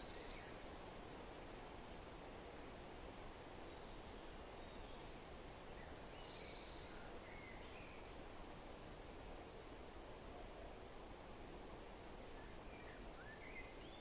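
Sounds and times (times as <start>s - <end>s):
faint bird chirps: 0.0s - 1.2s, 2.0s - 8.8s, 11.9s - 14.0s.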